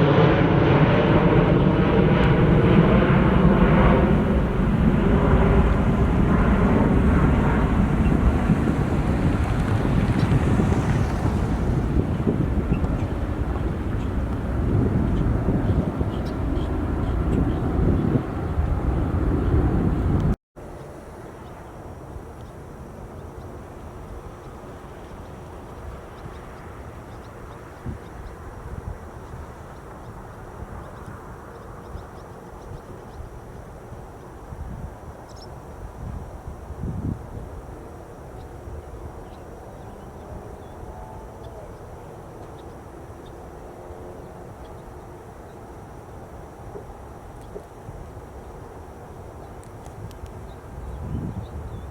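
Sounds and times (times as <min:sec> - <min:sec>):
loud jet engine: 0:00.0 - 0:20.4
distant airliner jet engines: 0:00.0 - 0:51.9
outdoor background noise: 0:00.0 - 0:51.9.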